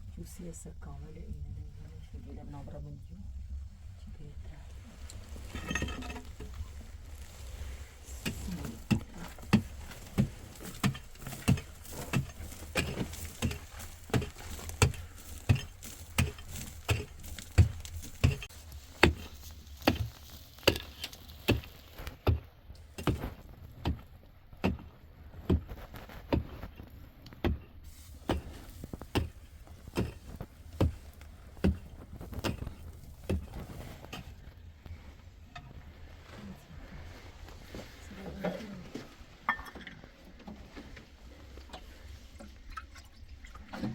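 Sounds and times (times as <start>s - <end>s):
hand tool striking hard material: 8.1s - 24.0s, 27.4s - 34.2s.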